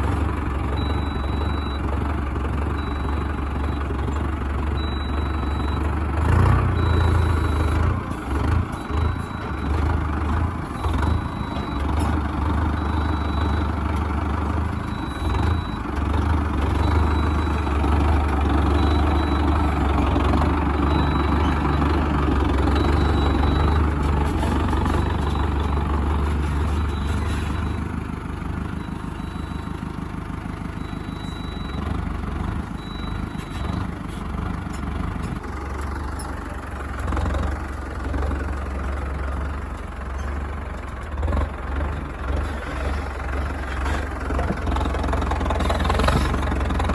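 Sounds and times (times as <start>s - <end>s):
diesel tractor engine running: 0.0s - 46.9s
engine clunks: 30.7s - 46.9s.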